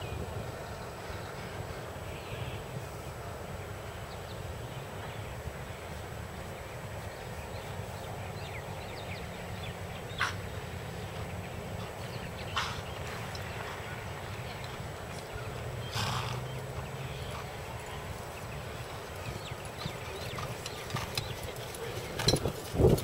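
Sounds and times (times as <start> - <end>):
small birds chirping: 6.4 - 22.9
sharp bird calls: 9.0 - 21.5.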